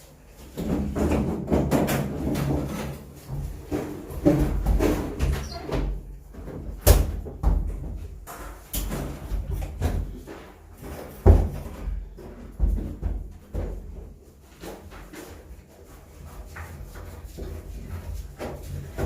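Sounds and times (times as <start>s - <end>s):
knocks and clunks of installation work: 0.5s - 14.2s.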